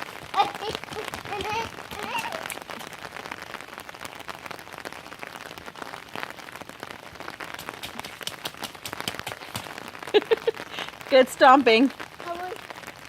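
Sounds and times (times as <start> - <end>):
child splashing through puddles: 0.0 - 3.2, 7.4 - 10.9
rain pattering: 0.0 - 13.0.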